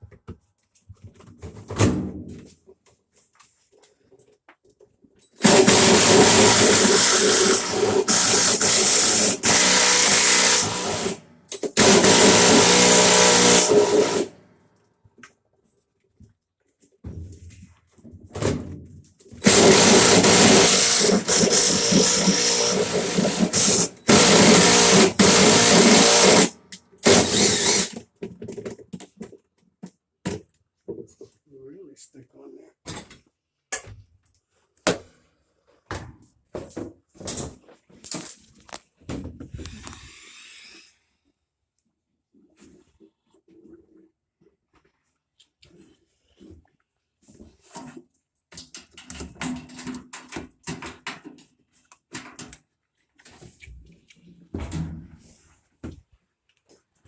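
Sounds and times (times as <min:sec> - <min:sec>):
power tool hissing: 0:05.4 - 0:11.2, 0:11.8 - 0:14.3, 0:19.4 - 0:28.0.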